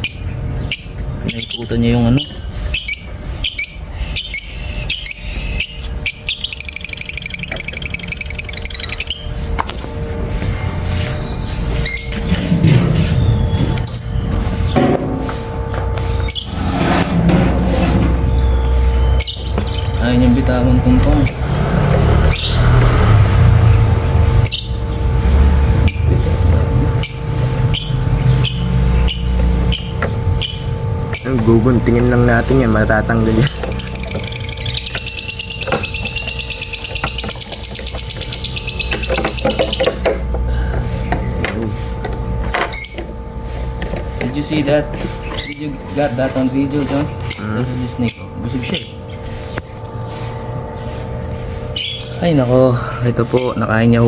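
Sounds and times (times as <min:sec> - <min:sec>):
lovebirds chirping: 0:00.0 - 0:54.0
rapid chattering bird notes: 0:00.0 - 0:54.0
loud low rumble: 0:16.1 - 0:34.9.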